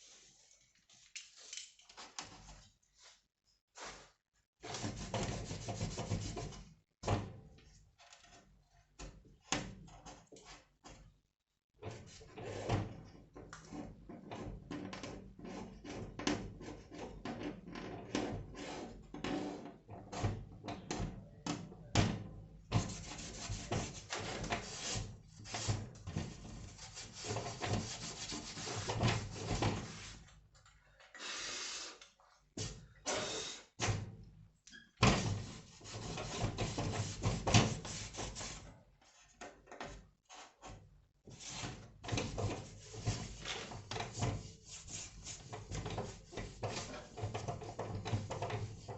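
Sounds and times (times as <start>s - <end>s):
scraping and rubbing: 22.8s - 30.3s, 35.4s - 39.4s, 40.3s - 48.9s.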